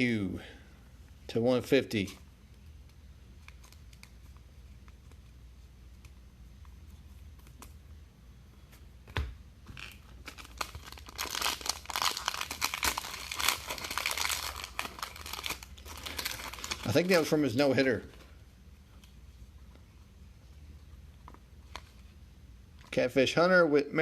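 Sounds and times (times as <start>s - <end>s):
wrapper crinkling and tearing: 9.8s - 17.4s.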